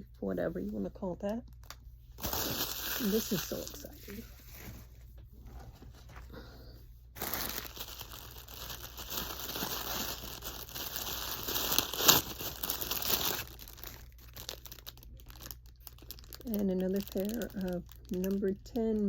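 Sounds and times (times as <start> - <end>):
packaging crinkling and tearing: 1.4 - 4.7, 7.2 - 19.0.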